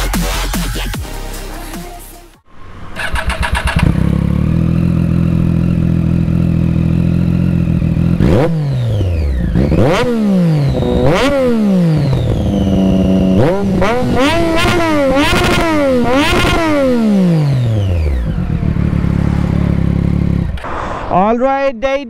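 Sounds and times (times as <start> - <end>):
engine revving: 2.5 - 21.1
motorcycle engine starting: 2.6 - 20.7
engine idling: 17.6 - 20.6.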